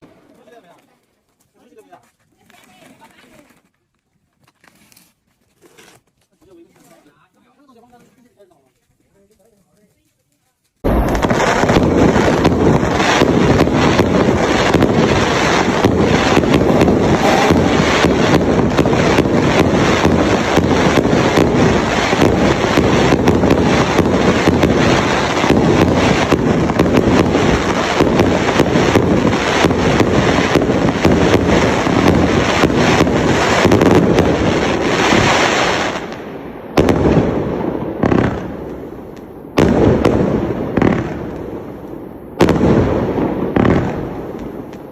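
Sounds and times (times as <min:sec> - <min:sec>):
fireworks firing barrage: 0:10.8 - 0:44.9.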